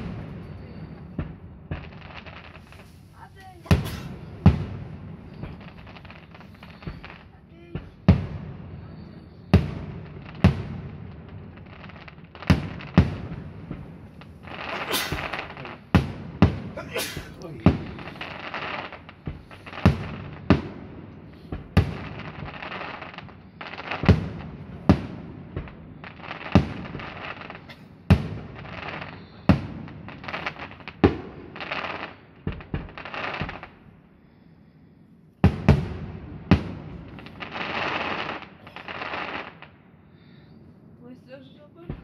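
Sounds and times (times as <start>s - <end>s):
firework shells bursting: 0.0s - 33.8s
hissing crackle of fireworks: 0.0s - 42.0s.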